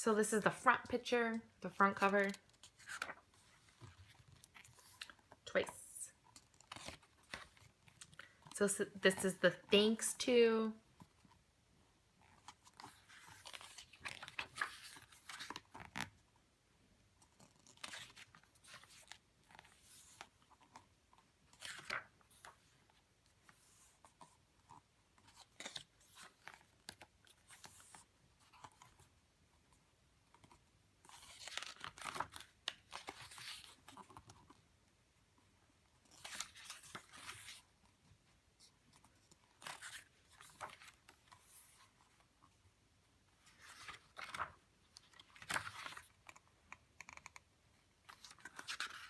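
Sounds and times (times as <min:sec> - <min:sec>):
paper pages rustling and flipping: 0:01.9 - 0:09.3, 0:12.2 - 0:16.2, 0:17.2 - 0:29.1, 0:30.3 - 0:34.6, 0:36.0 - 0:42.6, 0:43.4 - 0:47.2, 0:48.0 - 0:49.0.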